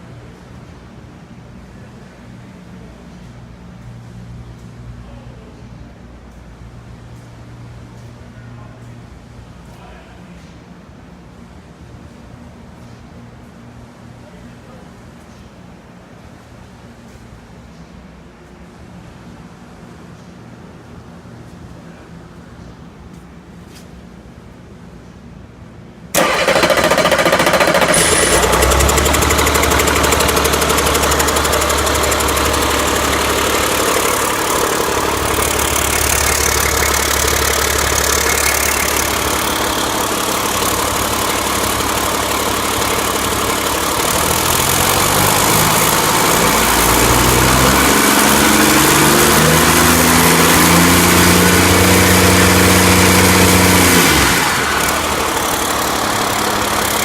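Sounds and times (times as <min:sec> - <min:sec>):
diesel engine idling and revving: 0:26.2 - 0:57.0.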